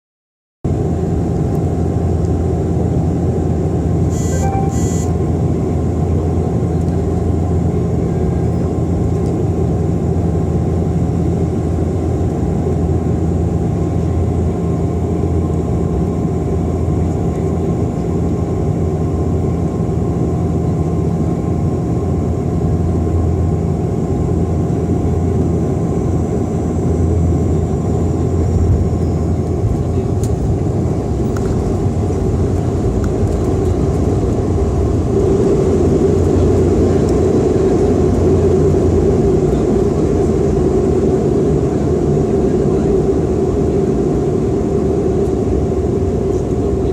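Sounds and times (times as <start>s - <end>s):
turboprop engines droning: 0.7s - 46.9s
brief high tones: 4.1s - 5.2s.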